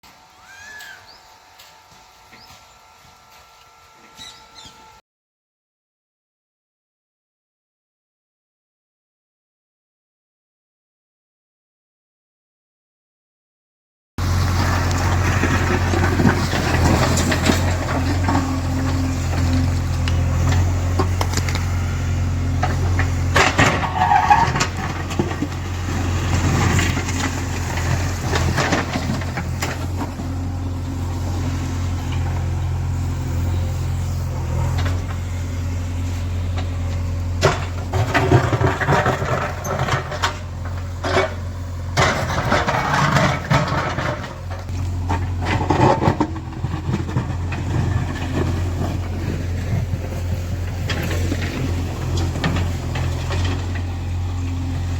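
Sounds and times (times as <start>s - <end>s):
diesel engine running: 14.2s - 54.9s.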